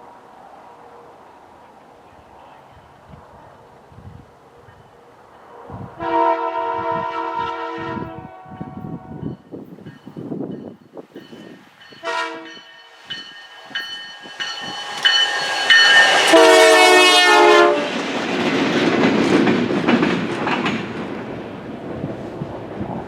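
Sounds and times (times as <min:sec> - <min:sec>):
locomotive horn blasts: 0:06.0 - 0:09.3, 0:12.0 - 0:12.7, 0:16.2 - 0:17.9
locomotive bell ringing: 0:08.6 - 0:17.1.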